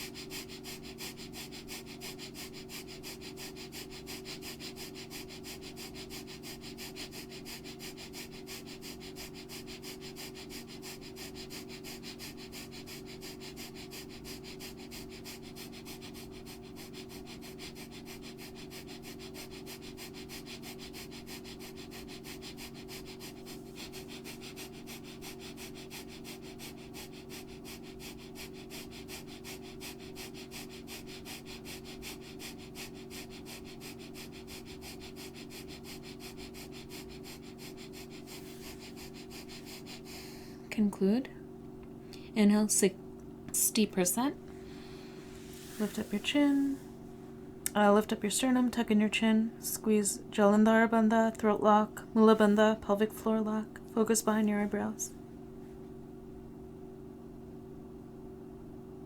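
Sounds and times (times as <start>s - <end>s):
person breathing fast through nose: 0.0s - 40.8s, 44.5s - 47.1s
steady low hum: 0.0s - 59.0s.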